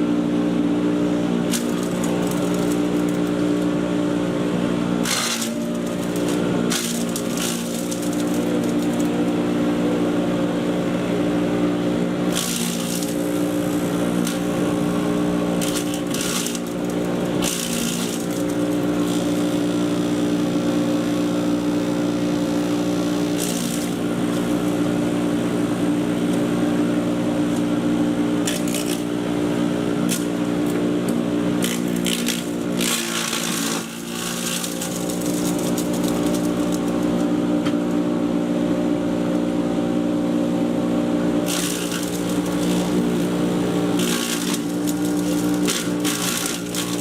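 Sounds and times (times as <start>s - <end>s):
chipper shredder motor hum: 0.0s - 47.0s
crackling rattling shredding: 1.5s - 3.7s, 5.0s - 9.6s, 11.8s - 20.8s, 22.4s - 27.8s, 28.4s - 37.3s, 41.4s - 47.0s.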